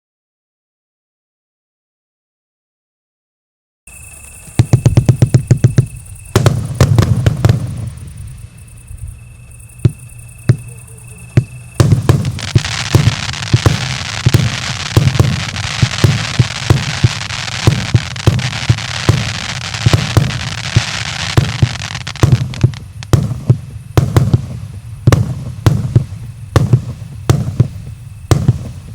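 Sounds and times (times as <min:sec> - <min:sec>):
fireworks bangs: 0:03.9 - 0:28.9
fireworks crackling: 0:03.9 - 0:28.9
fireworks launch thumps: 0:04.5 - 0:08.3, 0:09.4 - 0:28.9.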